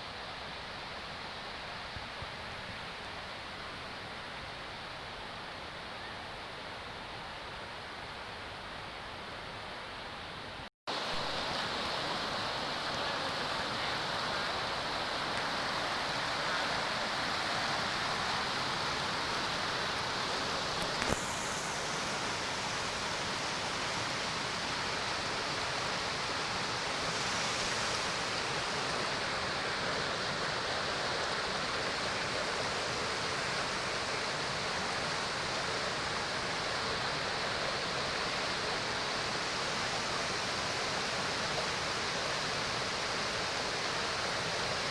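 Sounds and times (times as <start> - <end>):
waterfall rushing: 10.9 - 44.9.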